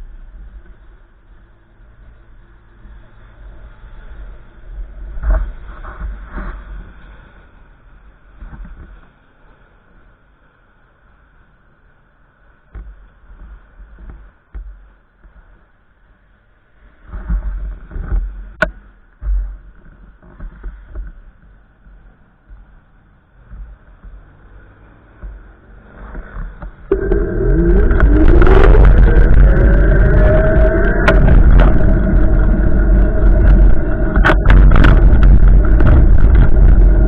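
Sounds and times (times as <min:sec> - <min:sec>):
wind buffeting microphone: 0:23.3 - 0:37.0
vehicle engine accelerating: 0:24.3 - 0:37.0.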